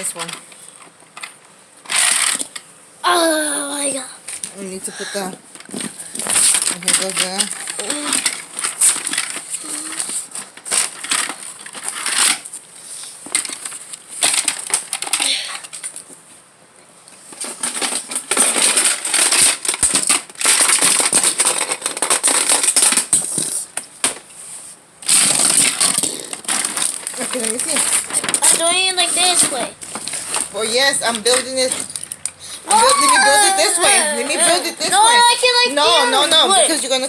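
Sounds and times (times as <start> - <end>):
plastic pieces clicking and clattering: 1.9 - 2.6, 5.7 - 12.5, 13.3 - 16.0, 17.4 - 24.2, 25.0 - 35.6.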